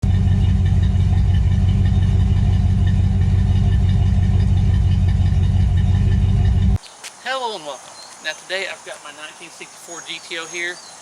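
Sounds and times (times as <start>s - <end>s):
car engine idling: 0.0s - 6.8s.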